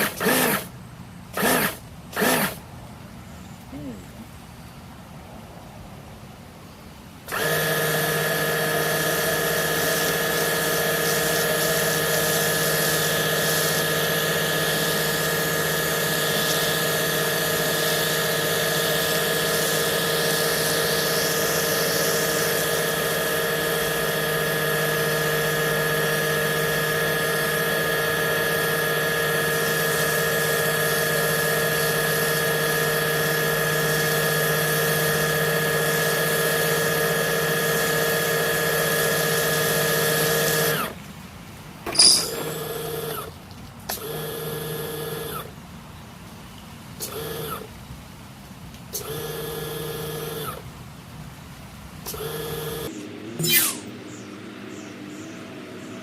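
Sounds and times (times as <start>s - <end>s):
electric pump humming: 0.0s - 0.7s, 1.3s - 2.6s, 7.3s - 41.0s, 41.9s - 45.5s, 47.0s - 47.7s, 48.9s - 50.7s, 52.0s - 53.8s
pressure washer hiss: 7.3s - 40.7s.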